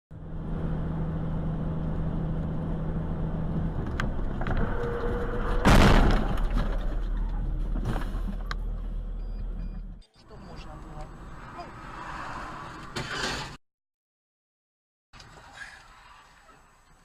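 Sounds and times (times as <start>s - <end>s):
car engine and road noise: 0.1s - 13.6s
loud bang: 4.6s - 6.9s.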